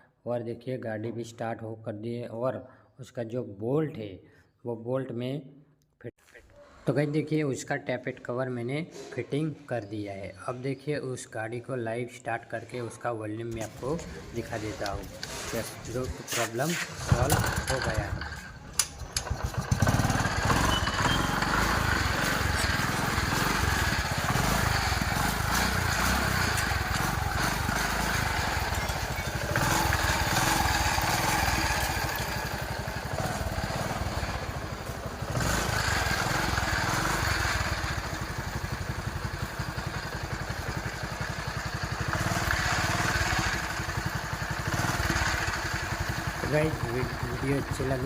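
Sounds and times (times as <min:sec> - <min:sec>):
moped engine revving: 0:13.6 - 0:48.0.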